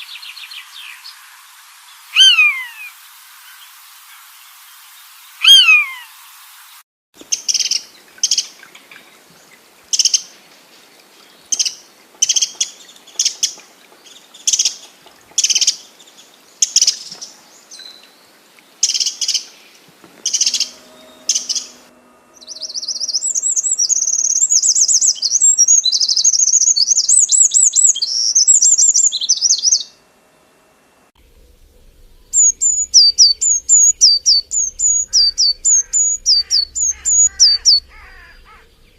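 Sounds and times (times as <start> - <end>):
rapid high twittering warble: 0.0 - 4.3, 20.2 - 30.0, 31.2 - 38.9
bird loud falling cry: 2.1 - 2.9, 5.4 - 6.1, 34.1 - 38.9
short sharp bird chirps: 2.1 - 2.9, 5.4 - 6.1, 32.3 - 38.9
run of high falling bird notes: 2.1 - 3.0, 5.4 - 6.1, 20.2 - 25.4, 31.2 - 38.9.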